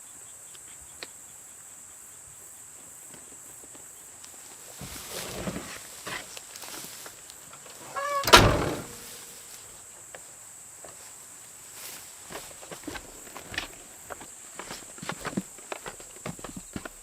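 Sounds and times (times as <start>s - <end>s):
high insect drone: 0.0s - 17.0s
brief squeak: 7.9s - 9.2s
loud bang: 8.2s - 9.2s.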